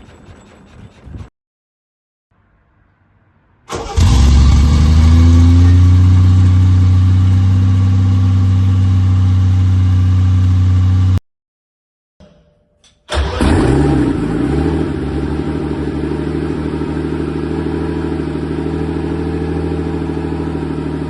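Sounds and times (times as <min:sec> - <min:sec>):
car engine starting and running: 0:03.7 - 0:11.2, 0:13.1 - 0:21.0.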